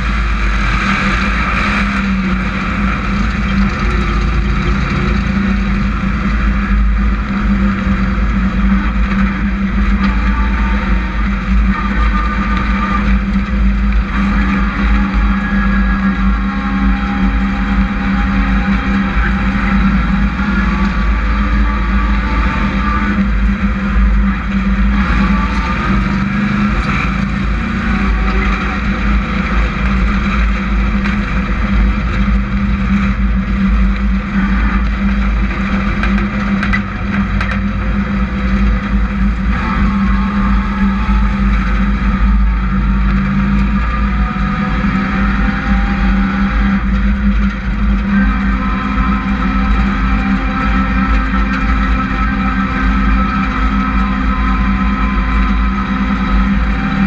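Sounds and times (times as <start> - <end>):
racing truck engines: 0.0 - 57.0.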